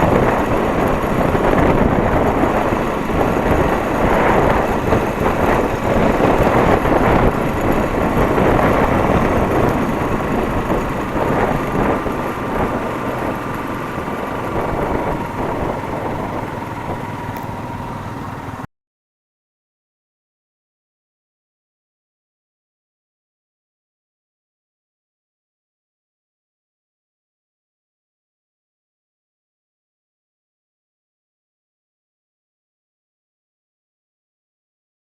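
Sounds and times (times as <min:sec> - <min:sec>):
motorcycle engine running: 0:00.0 - 0:18.7
road noise: 0:00.0 - 0:18.7.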